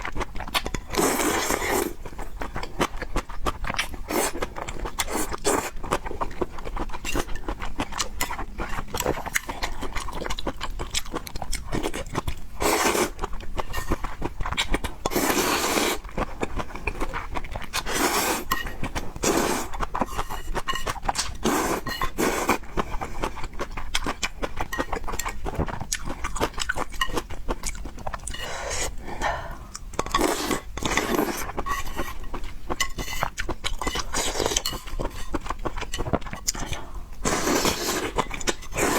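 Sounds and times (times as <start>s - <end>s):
chewing noodles and pork: 0.0s - 38.9s.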